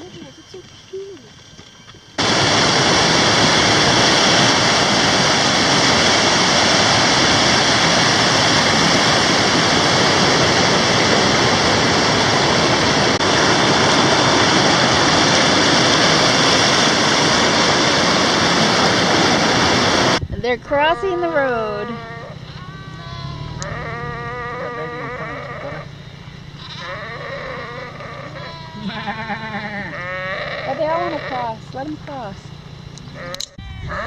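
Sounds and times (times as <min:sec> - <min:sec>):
loud steady rushing noise: 0:02.2 - 0:20.8.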